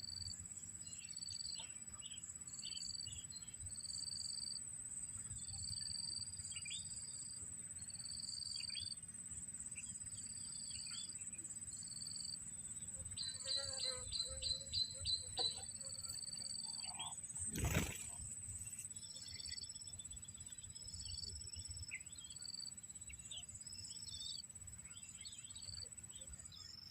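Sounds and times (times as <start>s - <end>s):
insects trilling: 0.0s - 26.9s
small birds chirping: 9.7s - 26.9s.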